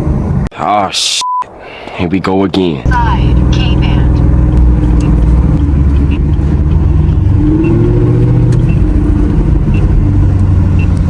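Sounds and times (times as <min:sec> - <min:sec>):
car engine accelerating: 0:02.9 - 0:11.0.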